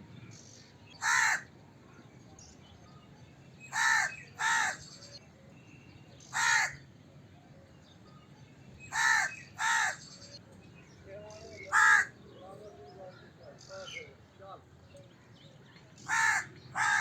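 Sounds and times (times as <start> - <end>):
crow cawing: 1.0 - 1.5, 3.7 - 4.8, 6.3 - 6.8, 8.9 - 10.0, 11.7 - 12.2, 16.1 - 17.0.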